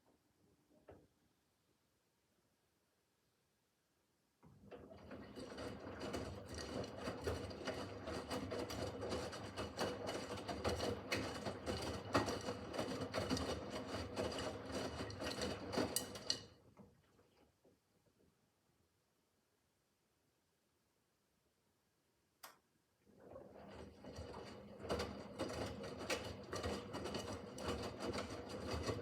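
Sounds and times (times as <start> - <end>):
washing machine motor hum: 4.5 - 17.4, 23.1 - 29.0.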